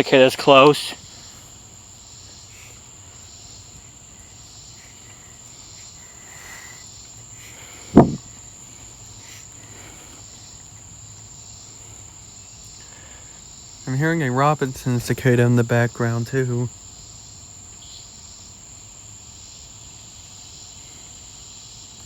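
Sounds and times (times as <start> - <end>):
cicada buzzing: 0.0 - 22.0
high-pitched insect chorus: 0.0 - 22.0
short loud thump: 7.9 - 8.2.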